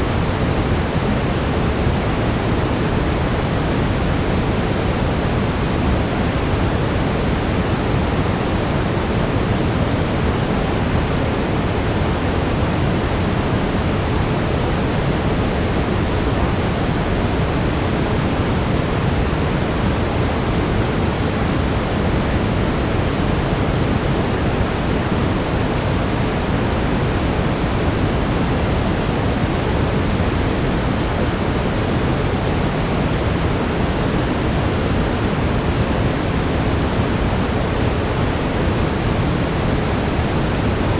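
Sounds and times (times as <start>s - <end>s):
steady brown noise hiss: 0.0s - 40.9s.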